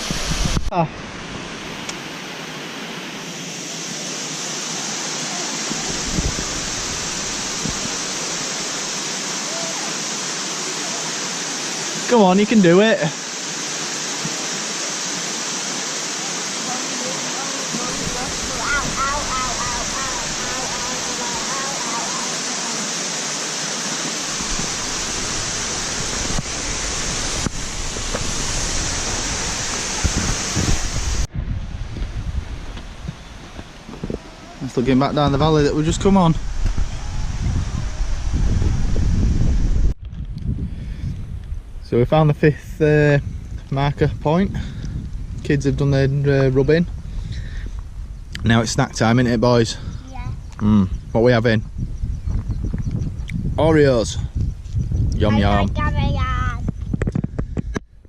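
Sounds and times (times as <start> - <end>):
waterfall rushing: 0.0 - 31.3, 33.3 - 39.3
low bumps: 24.3 - 42.0
low rumble: 35.2 - 42.0.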